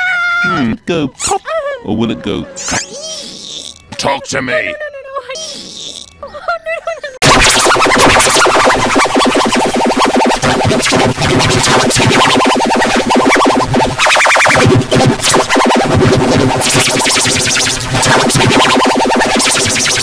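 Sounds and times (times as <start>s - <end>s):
distorted stuttering synthesizer music: 7.2s - 20.0s.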